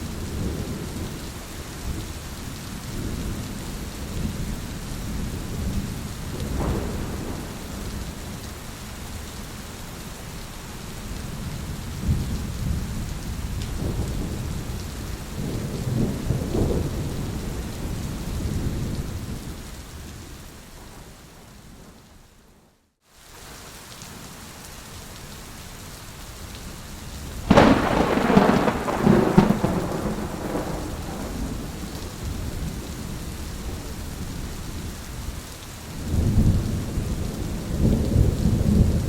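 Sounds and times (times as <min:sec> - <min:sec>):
steady rain: 0:00.0 - 0:39.0
rolling thunder: 0:03.0 - 0:08.6, 0:12.0 - 0:19.5, 0:27.4 - 0:34.4, 0:36.0 - 0:39.0.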